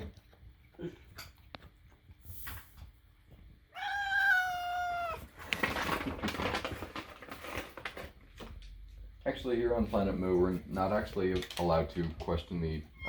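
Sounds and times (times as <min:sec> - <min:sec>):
cat meowing: 0:03.7 - 0:05.4
rough crackly noise: 0:05.0 - 0:08.7.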